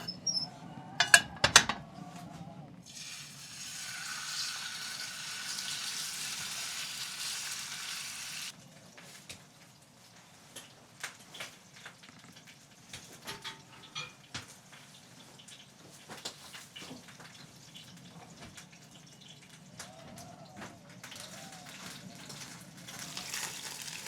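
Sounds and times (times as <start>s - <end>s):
food sizzling in a pan: 2.9s - 8.6s, 22.9s - 24.0s.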